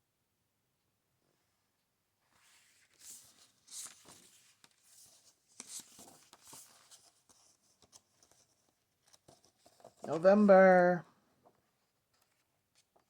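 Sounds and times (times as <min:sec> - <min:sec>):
book pages rustling: 0:02.3 - 0:10.5, 0:11.4 - 0:13.0.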